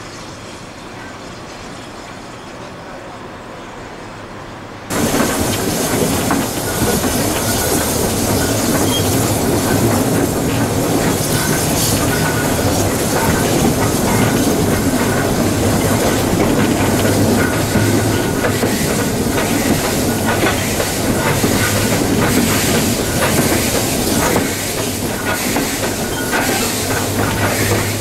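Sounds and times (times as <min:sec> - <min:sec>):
steam train rumbling: 0:00.0 - 0:28.0
wheels clattering over rail joints: 0:04.9 - 0:28.0.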